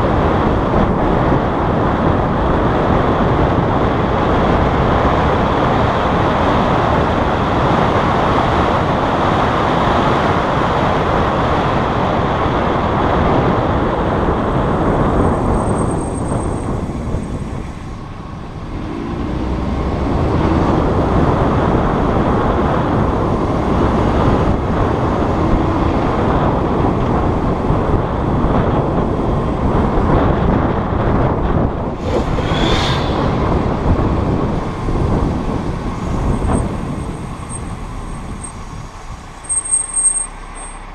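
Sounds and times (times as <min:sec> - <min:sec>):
car road noise: 0:00.0 - 0:40.9
brake squeal: 0:14.9 - 0:20.3, 0:32.0 - 0:40.9.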